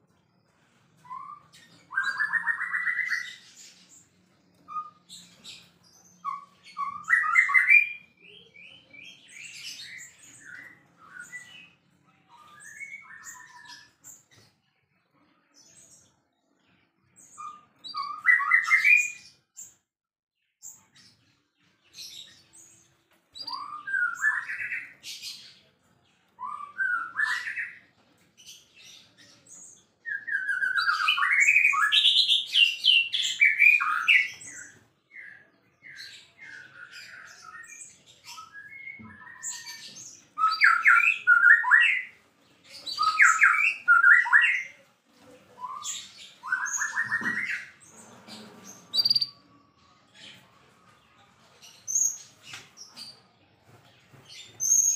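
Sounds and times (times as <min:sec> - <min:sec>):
bird singing whistled phrases: 0:40.4 - 0:42.1.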